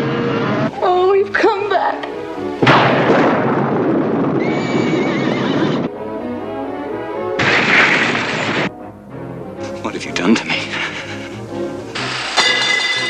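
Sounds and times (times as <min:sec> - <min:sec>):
background music: 0:00.0 - 0:04.4, 0:05.1 - 0:13.0
horse whinnying: 0:04.4 - 0:05.9.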